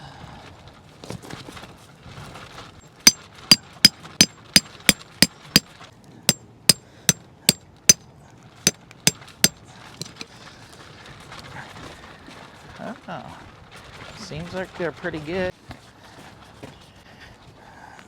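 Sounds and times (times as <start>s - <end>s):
hammering tent stakes: 3.1s - 5.7s.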